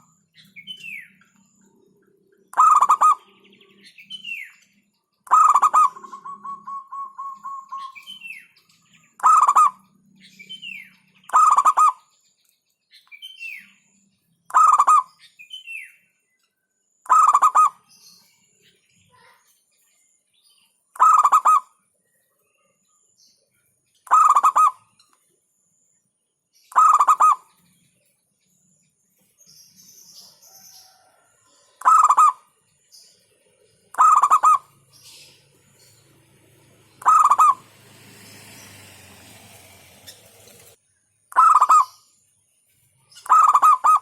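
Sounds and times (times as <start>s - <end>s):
dove cooing: 5.3s - 8.2s, 9.2s - 9.8s, 30.5s - 32.4s, 33.9s - 35.2s, 37.0s - 38.0s.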